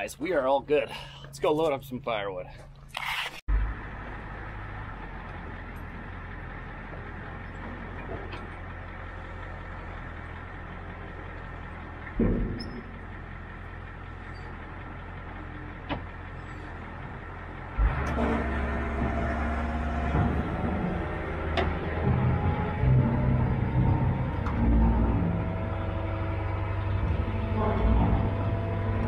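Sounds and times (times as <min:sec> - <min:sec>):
diesel engine idling: 0:03.5 - 0:29.0
thump: 0:12.2 - 0:12.9.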